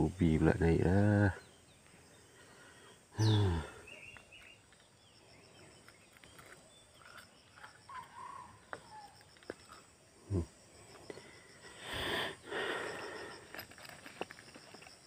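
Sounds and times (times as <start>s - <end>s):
bird-like chirps: 0.4s - 10.0s.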